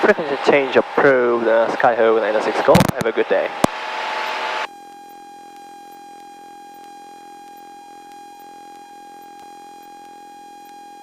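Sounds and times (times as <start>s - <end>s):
loud cabin noise: 0.0s - 4.7s
steady electronic tone: 0.0s - 11.0s.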